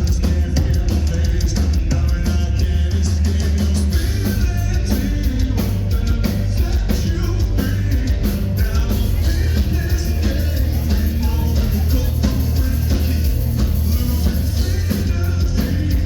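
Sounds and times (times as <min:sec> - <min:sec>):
heavy metal band playing live: 0:00.0 - 0:16.0
person singing: 0:00.0 - 0:16.0
steady drumbeat: 0:00.0 - 0:16.0.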